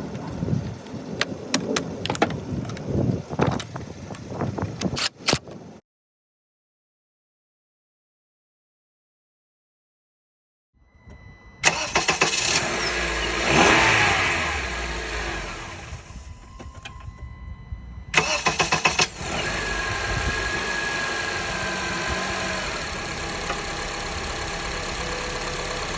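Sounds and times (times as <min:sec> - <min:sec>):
car engine starting and idling: 0:11.0 - 0:25.9
engine starter cranking: 0:11.6 - 0:17.3, 0:18.1 - 0:25.9.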